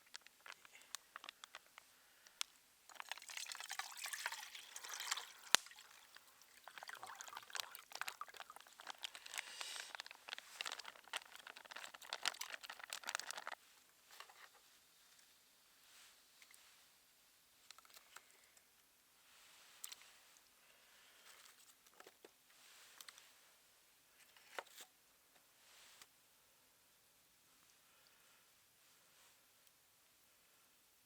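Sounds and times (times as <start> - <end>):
liquid being poured: 2.9 - 9.8.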